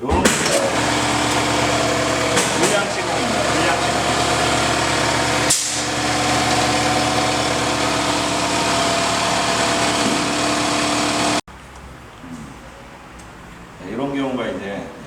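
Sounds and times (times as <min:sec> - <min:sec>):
machine humming: 0:00.5 - 0:11.4.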